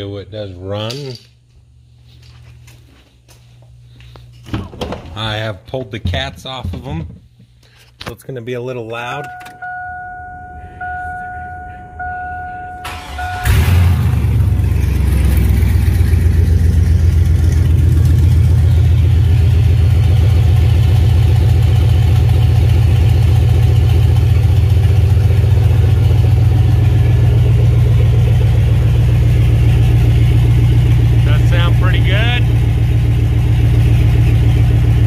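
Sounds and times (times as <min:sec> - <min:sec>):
two-tone warning chime: 0:09.0 - 0:13.8
v-eight engine starting and idling: 0:11.9 - 0:35.0.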